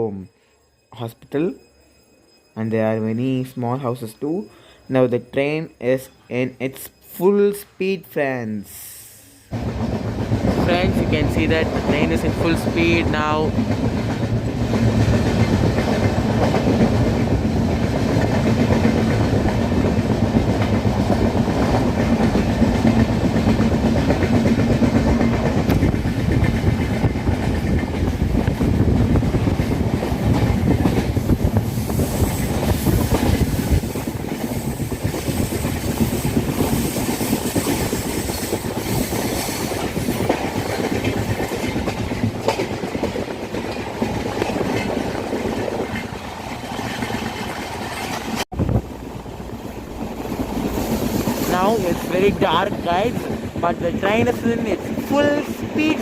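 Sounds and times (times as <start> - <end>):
hiss: 8.6 - 9.6, 31.2 - 40.1
rush of train wheels on rails: 8.8 - 56.0.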